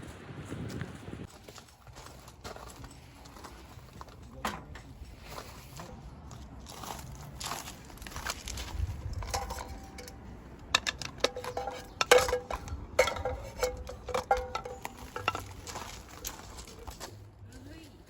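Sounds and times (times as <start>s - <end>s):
tableware clinking: 9.2s - 16.8s.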